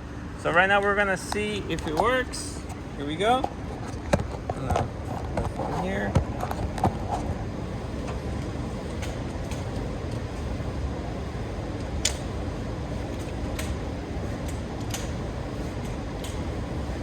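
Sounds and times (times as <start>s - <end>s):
fans rushing air: 0.0s - 17.0s.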